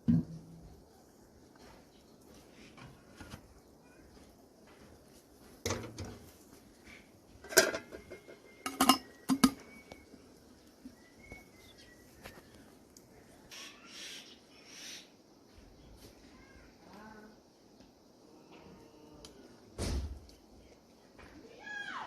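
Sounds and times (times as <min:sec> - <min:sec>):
dishes and utensils clinking: 0:07.4 - 0:09.8.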